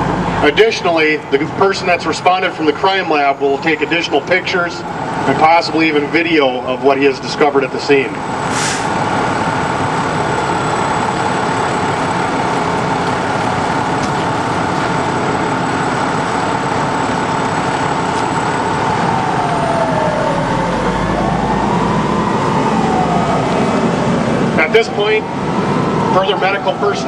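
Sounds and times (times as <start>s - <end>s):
ambulance siren wailing: 0.0s - 27.0s
emergency vehicle engines rumbling: 0.0s - 27.0s.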